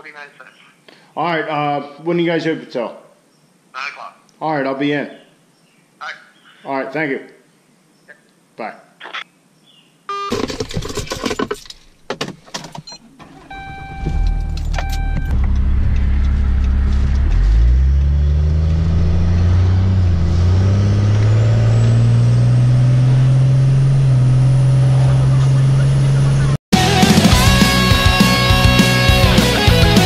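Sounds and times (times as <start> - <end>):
electronic chime beeping: 13.5 - 15.4
vehicle engine accelerating: 13.5 - 30.0.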